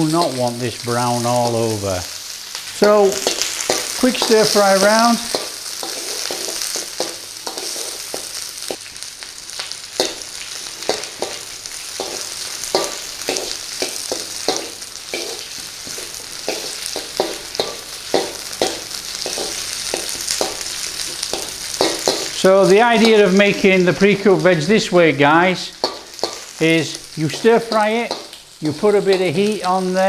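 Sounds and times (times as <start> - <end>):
vegetables sizzling in oil: 0.0 - 30.0
utensil scraping a pan: 3.1 - 8.2.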